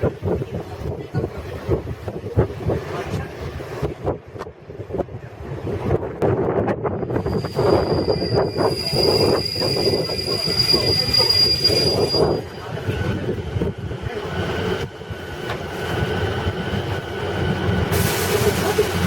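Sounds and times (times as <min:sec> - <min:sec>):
train coach rumbling on rails: 0:00.0 - 0:19.0
high wheel squeal: 0:07.2 - 0:12.7.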